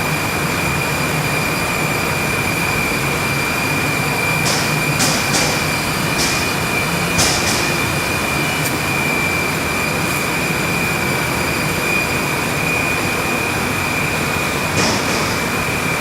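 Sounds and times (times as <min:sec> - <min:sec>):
boiler machinery rushing and whining: 0:00.0 - 0:16.0.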